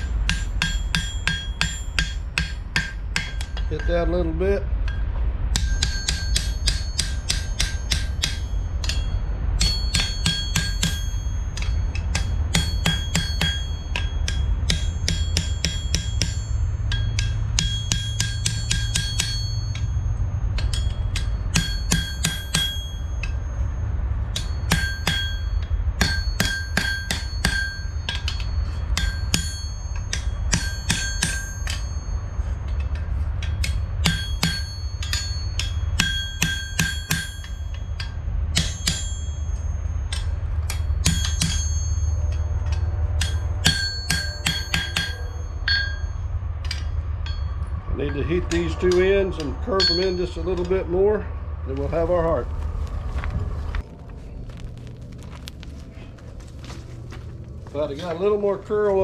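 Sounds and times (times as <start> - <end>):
low rumble: 0.0 - 30.9, 45.1 - 59.0
hammer ringing on anvil: 0.0 - 51.3, 57.8 - 59.0.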